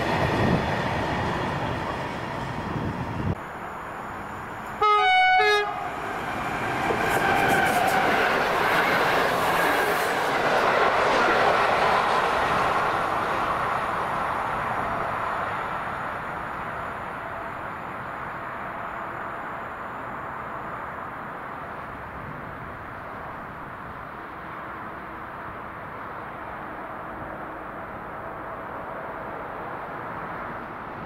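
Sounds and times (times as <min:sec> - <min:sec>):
train running past: 0:00.0 - 0:31.0
train horn blasts: 0:04.8 - 0:06.0.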